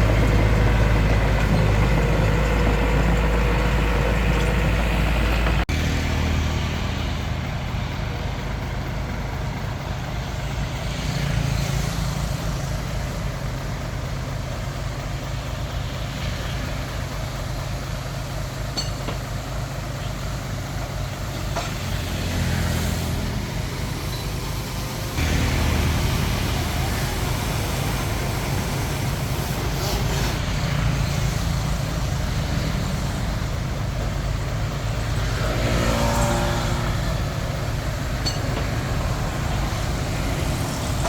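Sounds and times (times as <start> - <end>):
bulldozer diesel engine under load: 0.0 - 41.0
light metal clanks: 18.7 - 19.3.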